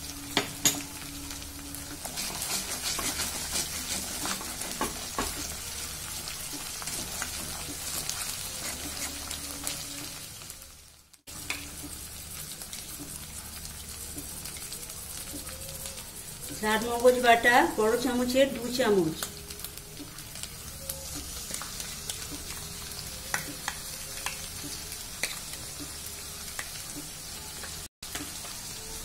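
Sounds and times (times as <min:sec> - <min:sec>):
paste sizzling in oil: 0:00.0 - 0:29.0
metal spatula scraping pan: 0:02.0 - 0:05.5, 0:06.9 - 0:09.8.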